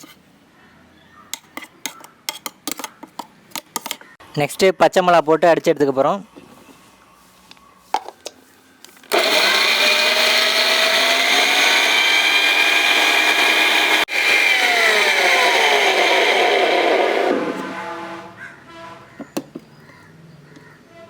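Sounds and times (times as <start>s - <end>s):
mixer grinder motor whining: 9.1s - 18.1s.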